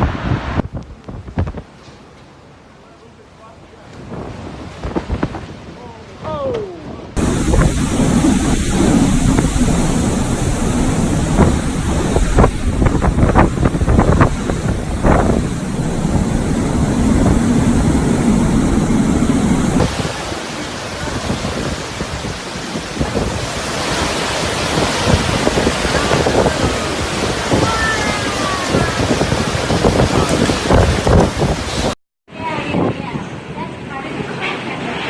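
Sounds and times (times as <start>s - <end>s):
wind buffeting microphone: 0.0s - 1.8s, 4.0s - 35.0s
deep rumble: 7.1s - 32.0s.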